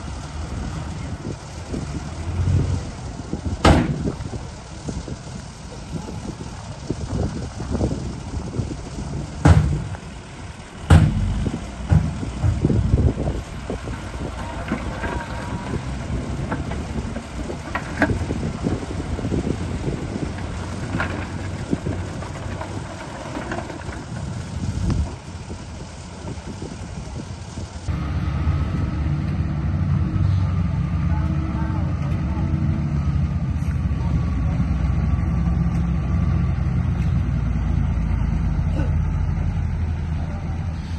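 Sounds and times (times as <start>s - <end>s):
low rumble: 0.0s - 40.9s
sharp loud knocks: 9.4s - 9.9s, 10.9s - 12.8s.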